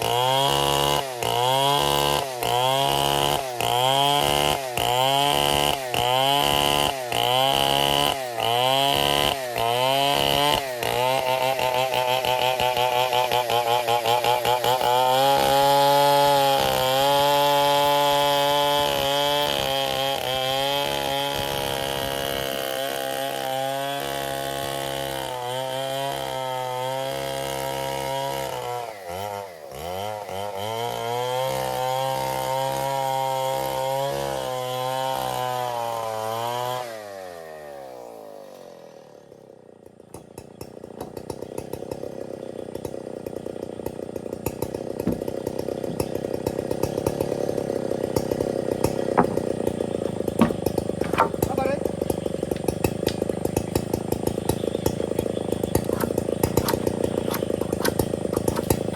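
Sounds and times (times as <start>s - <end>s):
chainsaw sawing wood: 0.0s - 58.9s
quiet rattling: 49.2s - 52.7s, 55.7s - 58.9s.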